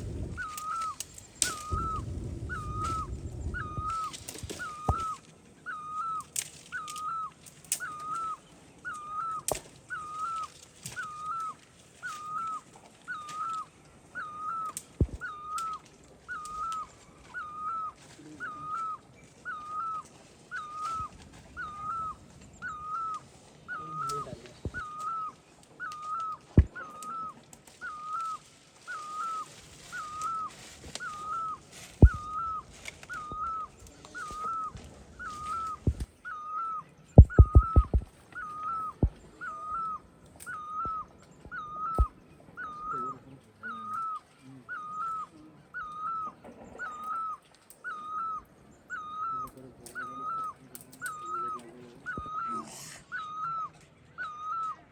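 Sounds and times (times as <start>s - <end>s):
sharp clicks: 37.2s - 39.2s.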